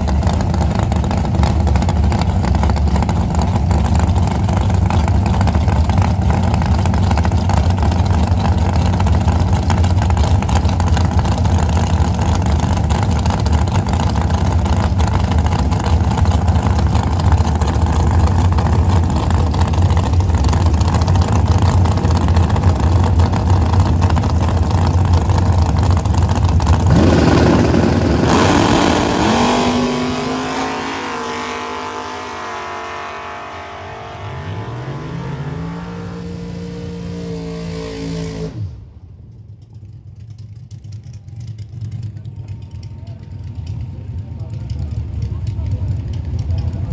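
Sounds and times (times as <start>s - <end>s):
drag racing engines running: 0.0s - 46.9s.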